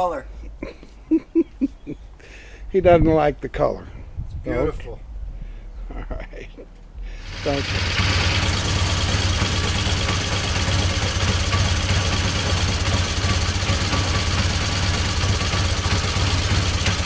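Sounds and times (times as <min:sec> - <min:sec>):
motorcycle engine idling: 0:07.1 - 0:17.0.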